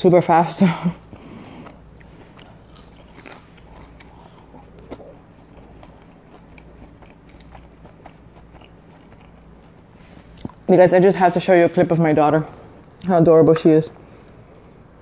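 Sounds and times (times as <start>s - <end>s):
person chewing food: 1.0s - 10.7s.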